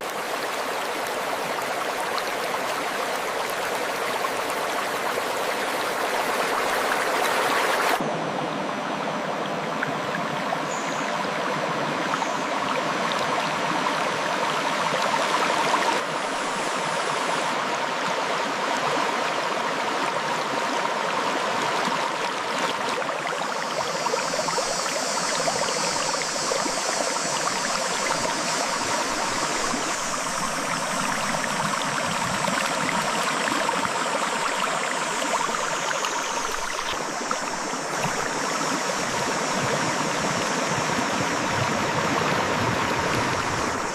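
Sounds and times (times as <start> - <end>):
river flowing over rocks: 0.0 - 43.9
high hiss: 23.2 - 43.9.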